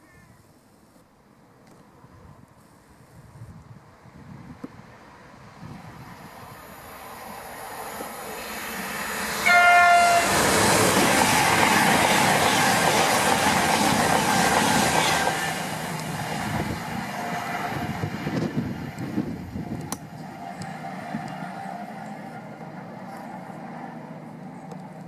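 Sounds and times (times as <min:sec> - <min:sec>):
train passing at speed: 0:03.8 - 0:25.0
train horn blast: 0:09.4 - 0:10.5.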